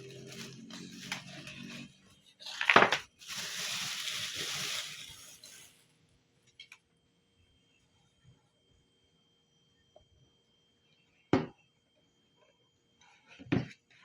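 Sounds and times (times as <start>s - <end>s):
water running into kettle: 2.5s - 5.7s.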